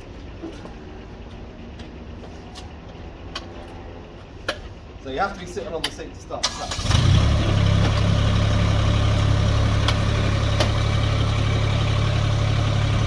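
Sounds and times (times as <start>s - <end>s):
tractor diesel engine idling: 6.4s - 13.0s.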